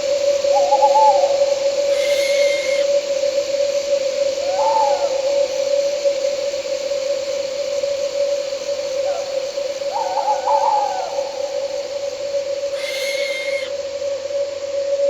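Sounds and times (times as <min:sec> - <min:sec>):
crickets chirping: 0:00.0 - 0:15.0
night insects droning: 0:00.0 - 0:15.0
owl hooting: 0:00.5 - 0:03.4, 0:04.4 - 0:05.6, 0:08.8 - 0:13.8
short hiss: 0:01.9 - 0:02.9, 0:12.8 - 0:13.7.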